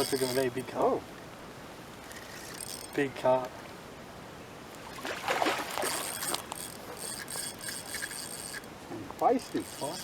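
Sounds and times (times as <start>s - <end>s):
fishing reel ratcheting: 0.0s - 0.6s, 2.1s - 3.0s, 5.8s - 8.7s, 9.3s - 10.0s.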